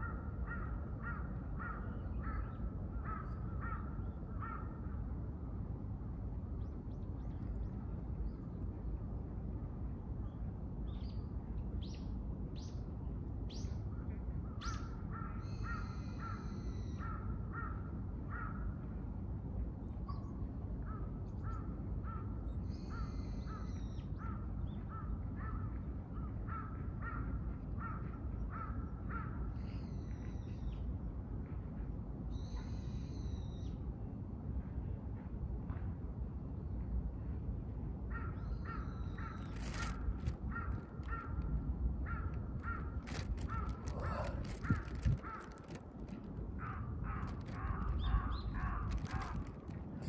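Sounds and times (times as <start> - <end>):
low background rumble: 27.3 - 50.0
short repeated bird calls: 38.8 - 41.4.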